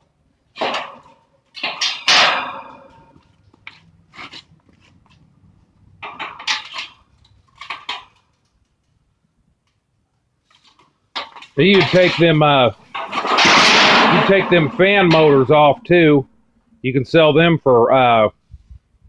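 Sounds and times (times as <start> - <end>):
sheet metal clanging: 0.6 - 3.3, 6.0 - 8.1, 11.2 - 17.0.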